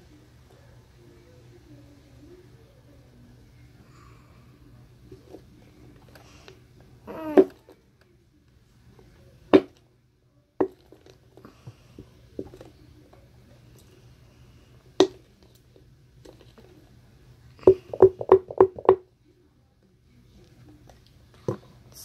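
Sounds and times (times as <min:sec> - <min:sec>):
glue bottle knocking: 0:17.6 - 0:19.0.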